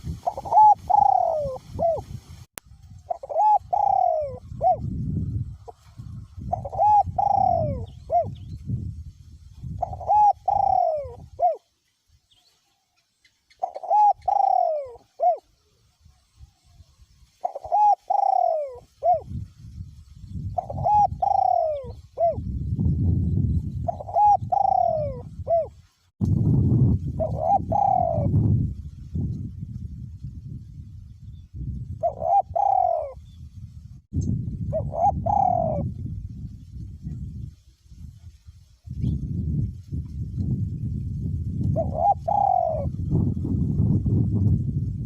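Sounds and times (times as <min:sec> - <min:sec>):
wind rumble on microphone: 0:00.0 - 0:12.5, 0:13.6 - 0:45.0
dove cooing: 0:00.2 - 0:02.0, 0:03.1 - 0:04.9, 0:06.4 - 0:08.5, 0:09.7 - 0:11.7, 0:13.5 - 0:15.6, 0:17.4 - 0:19.4, 0:20.6 - 0:22.5, 0:23.8 - 0:25.8, 0:27.2 - 0:28.5, 0:32.0 - 0:33.3, 0:34.7 - 0:36.0, 0:41.7 - 0:43.3.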